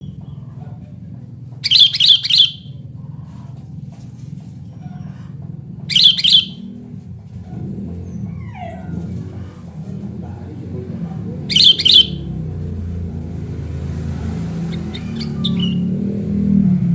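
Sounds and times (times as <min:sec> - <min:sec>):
steady low hum: 0:00.0 - 0:16.9
bulbul calling: 0:01.6 - 0:02.8, 0:05.9 - 0:06.7, 0:11.3 - 0:12.6, 0:14.6 - 0:16.1.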